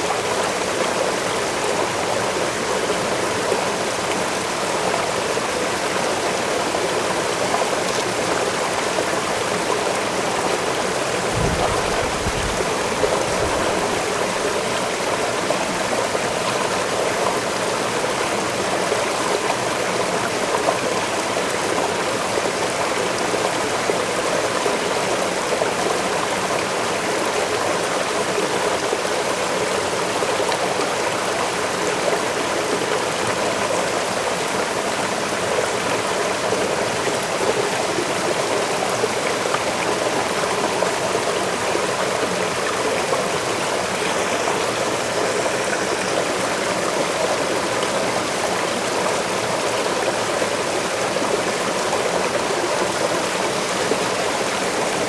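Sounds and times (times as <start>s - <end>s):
waterfall splashing into stream: 10.9s - 15.3s.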